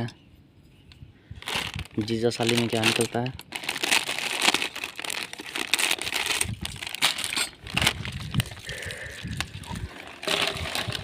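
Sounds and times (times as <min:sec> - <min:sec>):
plastic snack packet crinkling: 0:01.4 - 0:11.0.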